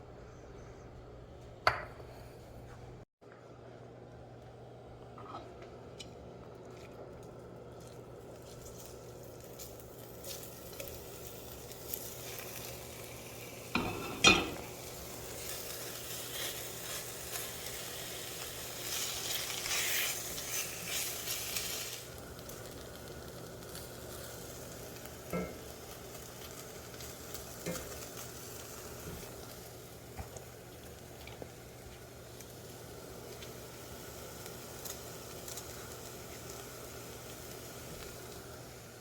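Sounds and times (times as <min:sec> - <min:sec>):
food sizzling in a skillet: 0:08.2 - 0:39.0.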